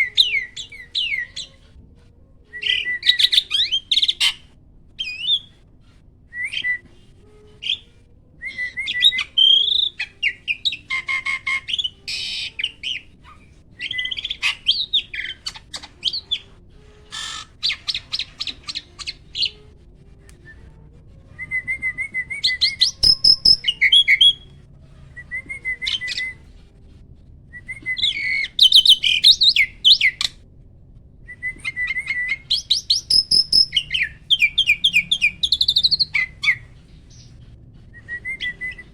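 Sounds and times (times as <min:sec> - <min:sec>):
starling chirps whistles and trills: 0:00.0 - 0:01.6, 0:02.6 - 0:04.4, 0:05.0 - 0:05.5, 0:08.5 - 0:16.5, 0:17.1 - 0:19.6, 0:21.4 - 0:24.5, 0:27.7 - 0:30.3, 0:31.3 - 0:37.4, 0:38.0 - 0:38.9.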